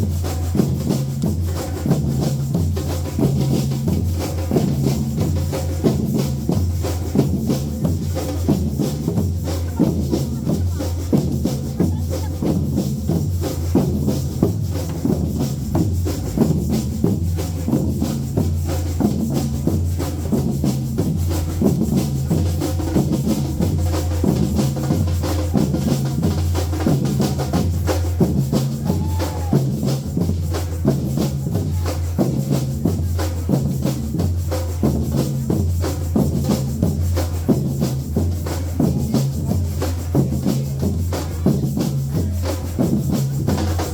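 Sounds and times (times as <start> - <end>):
drum kit: 0.0 - 37.3
shaker strokes: 0.0 - 43.9
bass line: 13.8 - 27.8.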